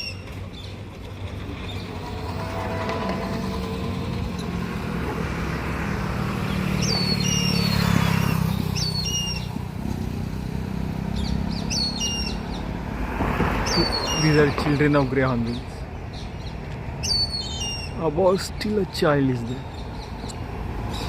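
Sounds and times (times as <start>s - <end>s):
motor vehicle passing: 0.0s - 18.0s, 19.6s - 21.0s
hornbills squealing: 6.7s - 9.6s, 11.2s - 12.6s, 13.6s - 14.6s, 17.0s - 18.0s.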